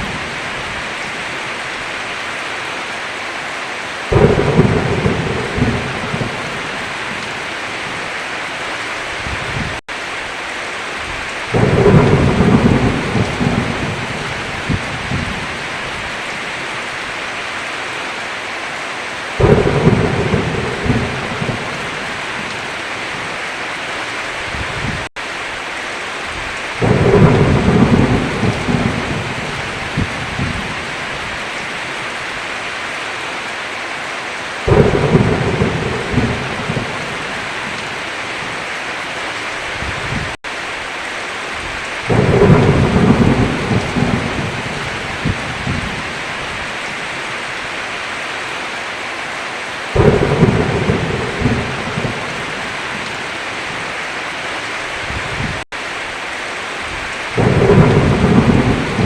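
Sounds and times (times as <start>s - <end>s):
heavy rain falling: 0.0s - 59.0s
thunder rumbling: 4.1s - 8.1s, 11.0s - 16.2s, 19.4s - 23.3s, 26.3s - 31.5s, 34.7s - 38.6s, 41.6s - 47.1s, 49.9s - 53.9s, 56.9s - 59.0s.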